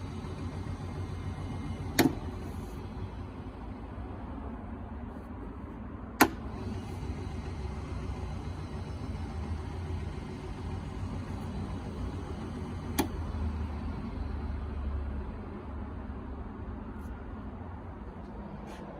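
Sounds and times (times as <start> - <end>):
grinder motor humming: 0.0 - 3.9, 6.2 - 14.8
sharp clicks: 0.1 - 3.2, 6.2 - 8.2, 8.9 - 13.6.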